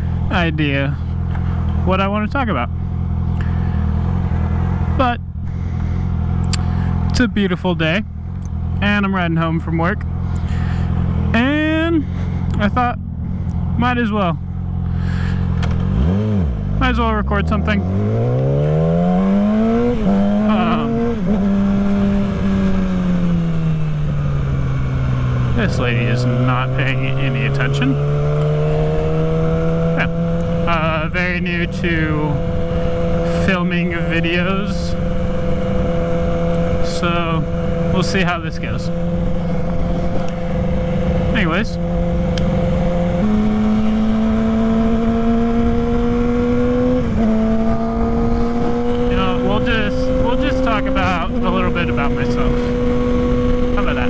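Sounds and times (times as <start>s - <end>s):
low wind rush: 0.0s - 54.0s
motorcycle engine shifting gears: 0.0s - 54.0s
wind rumble on microphone: 38.7s - 54.0s.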